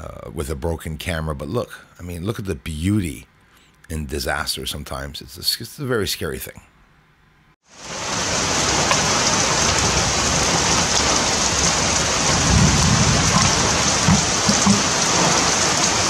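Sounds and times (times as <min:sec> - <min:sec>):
heavy rain pouring: 0:07.7 - 0:16.0
low thumps: 0:12.4 - 0:15.2.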